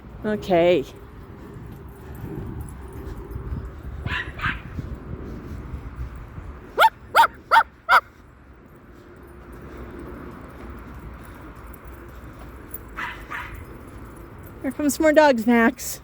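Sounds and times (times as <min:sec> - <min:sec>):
cockatoo imitating dog barks: 0:06.8 - 0:08.1.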